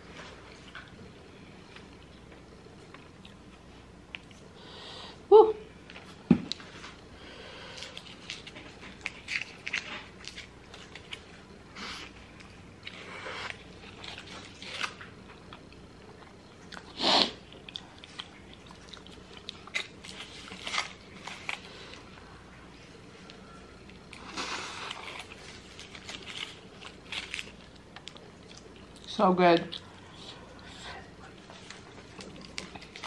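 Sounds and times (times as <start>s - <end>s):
chewing and biting: 7.7s - 22.1s, 23.3s - 29.1s, 29.7s - 33.0s.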